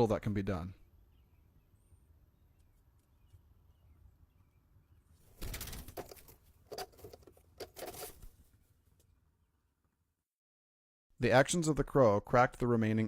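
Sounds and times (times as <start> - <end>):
bird wings flapping: 5.2 - 7.1.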